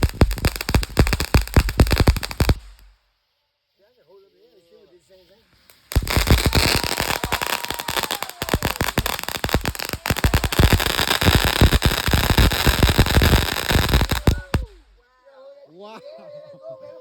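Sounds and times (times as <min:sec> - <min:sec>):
firework crackling pops: 0:00.0 - 0:03.2, 0:05.5 - 0:15.0
firework hiss: 0:00.0 - 0:15.0.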